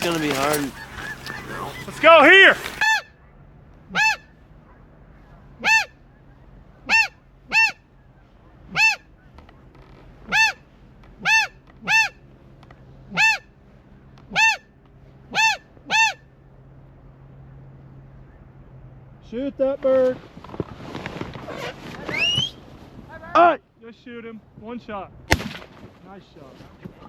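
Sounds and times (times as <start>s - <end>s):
goose honking: 0.0s - 3.2s, 3.8s - 16.4s.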